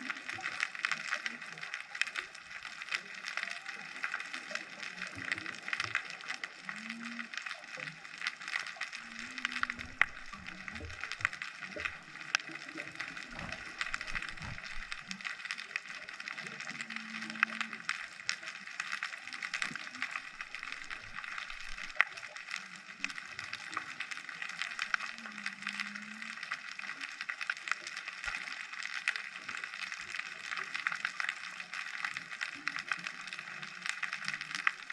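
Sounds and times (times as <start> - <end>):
underwater crackle of clicks: 0.0 - 34.9.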